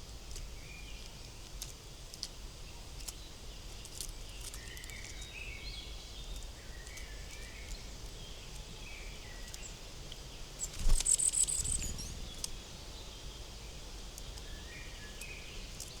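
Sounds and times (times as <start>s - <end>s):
birds chirping: 10.4s - 15.6s.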